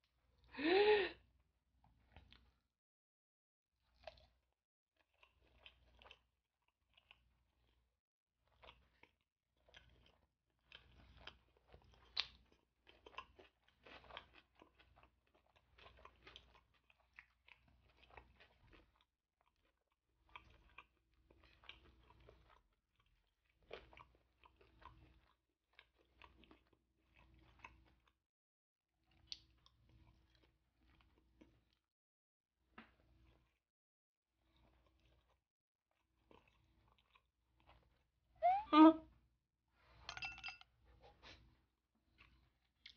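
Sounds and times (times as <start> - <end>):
chewing and biting fried chicken: 3.8 - 28.3, 29.0 - 31.9, 32.7 - 33.7, 34.3 - 38.2, 41.1 - 42.9.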